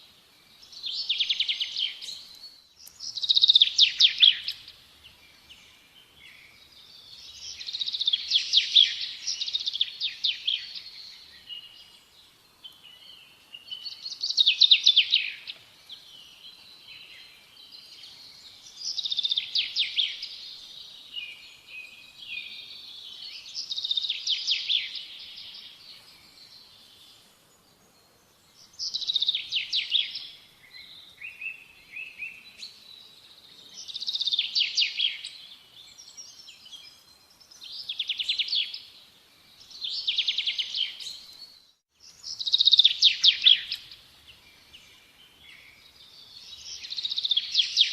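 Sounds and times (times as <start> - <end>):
soft bird twittering: 0.4 - 27.2, 28.4 - 47.9
songbird trilling: 0.8 - 4.8, 13.7 - 15.6, 28.8 - 30.4, 39.7 - 41.3, 42.2 - 44.0.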